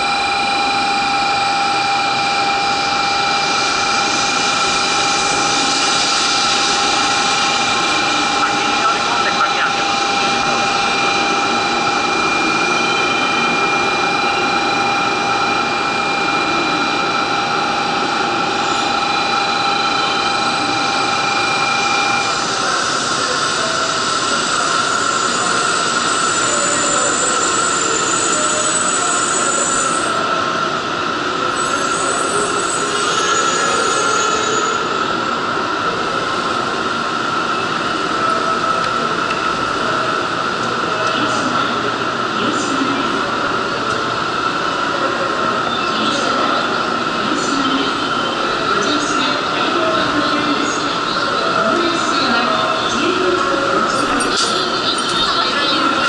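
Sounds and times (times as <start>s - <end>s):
high squeal: 0.0s - 30.7s, 31.4s - 35.4s
high whines: 0.0s - 42.0s
train running noise: 0.0s - 56.0s.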